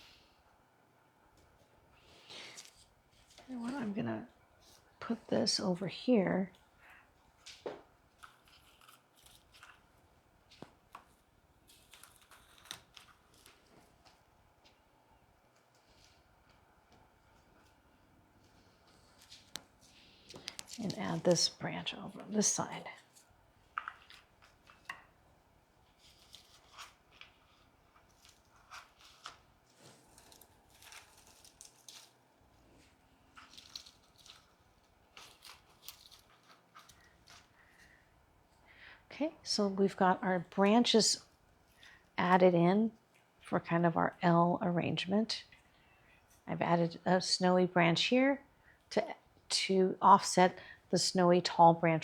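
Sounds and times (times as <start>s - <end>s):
branches rustling and clicking: 7.4s - 14.8s, 25.9s - 32.2s, 33.3s - 37.8s.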